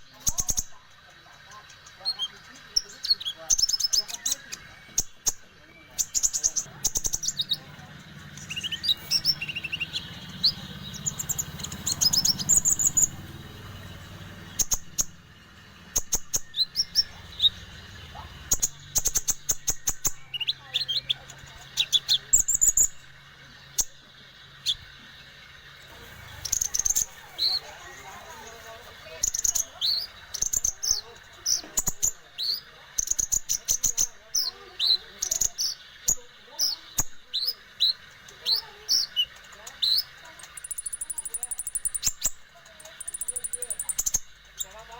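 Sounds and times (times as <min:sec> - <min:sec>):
bird chirping: 0:00.0 - 0:44.9
sunbird twittering trills: 0:00.0 - 0:44.9
short rising bird chirps: 0:08.4 - 0:21.0.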